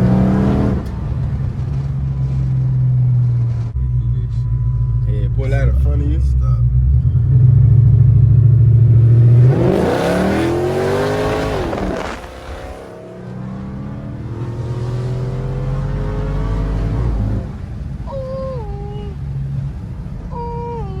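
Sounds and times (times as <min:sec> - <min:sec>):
muscle car engine revving: 0:00.0 - 0:18.0.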